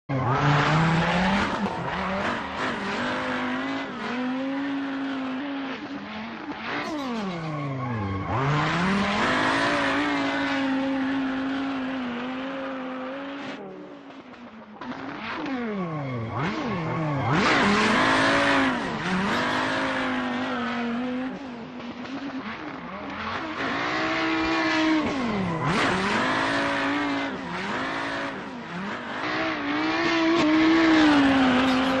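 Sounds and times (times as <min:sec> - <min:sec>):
tires squealing: 0:00.2 - 0:13.6, 0:14.8 - 0:32.0
turbo engine revving high: 0:06.8 - 0:13.6, 0:16.4 - 0:21.4, 0:22.6 - 0:32.0.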